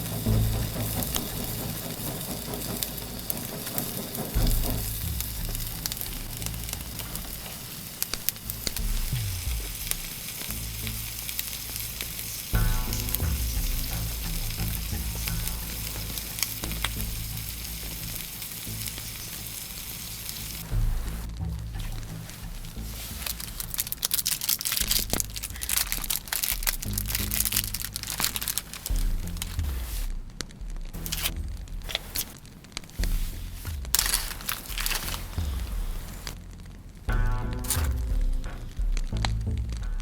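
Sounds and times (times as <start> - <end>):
quiet background music: 0.0 - 40.0
food sizzling in a pan: 0.1 - 20.7.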